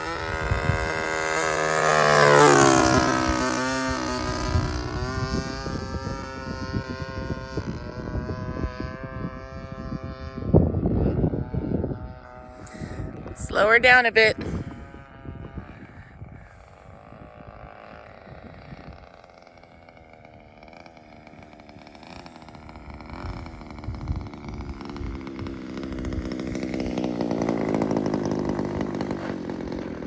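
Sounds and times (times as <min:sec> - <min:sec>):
model plane engine: 0:00.0 - 0:30.0
wind buffeting microphone: 0:00.0 - 0:30.0.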